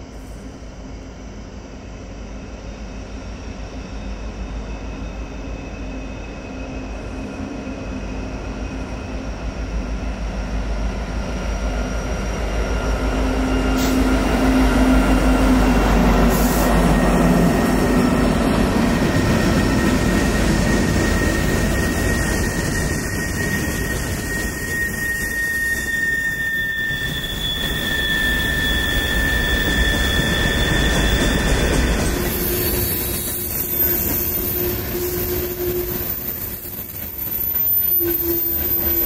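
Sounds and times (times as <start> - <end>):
diesel locomotives passing: 0.0 - 39.0.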